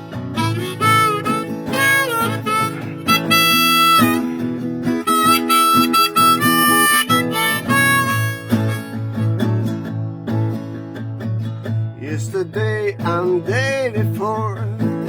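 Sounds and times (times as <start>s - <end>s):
strummed acoustic guitar: 0.0s - 15.0s
harmonica bent notes: 0.2s - 9.6s.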